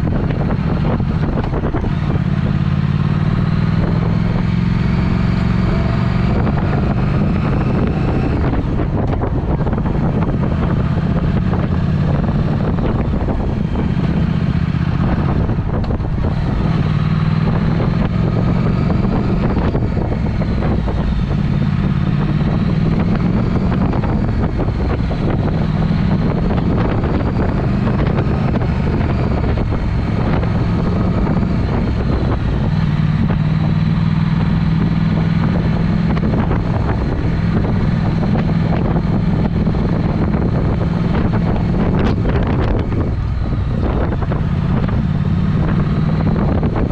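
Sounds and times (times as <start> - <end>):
motorcycle engine revving: 0.0 - 46.9
wind on microphone: 0.0 - 46.9.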